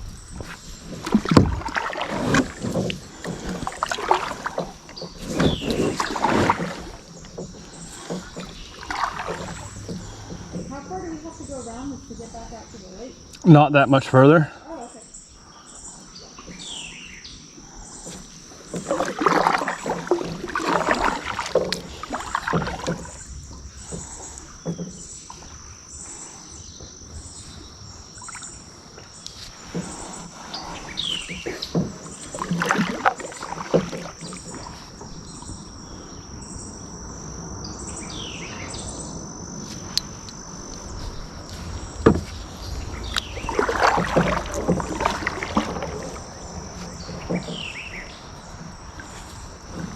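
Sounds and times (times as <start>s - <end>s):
paddle strokes splashing in water: 0.0s - 14.2s, 15.2s - 49.9s
high insect buzz: 17.9s - 49.9s.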